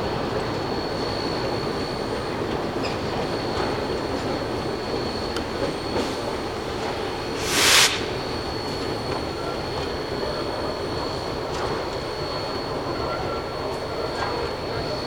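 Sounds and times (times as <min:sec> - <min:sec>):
train rumbling on rails: 0:00.0 - 0:15.0
short loud hiss: 0:07.4 - 0:08.2.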